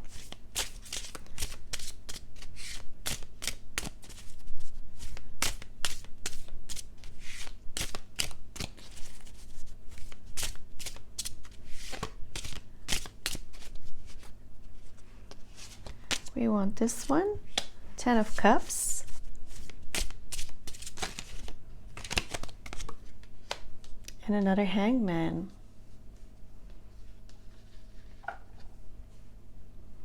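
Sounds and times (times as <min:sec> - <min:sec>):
cards being shuffled: 0:00.0 - 0:04.4, 0:05.0 - 0:16.3, 0:19.1 - 0:24.0.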